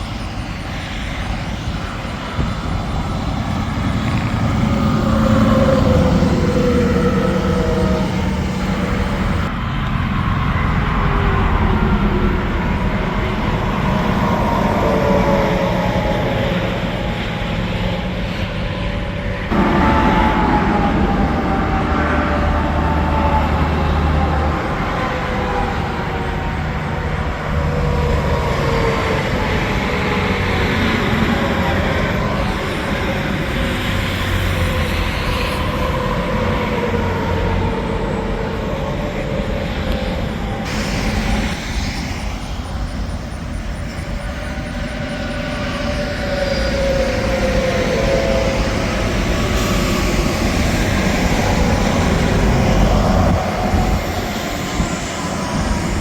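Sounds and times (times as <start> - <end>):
highway traffic passing: 0.0 - 56.0.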